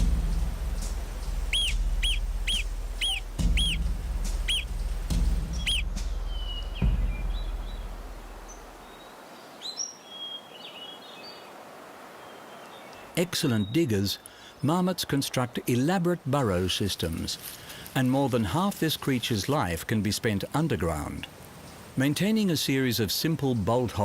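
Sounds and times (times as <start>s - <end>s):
low rumble: 0.0s - 8.7s
faint short chirps: 1.5s - 3.8s
marmot alarm whistles: 1.5s - 3.8s, 4.4s - 4.7s, 5.6s - 6.8s.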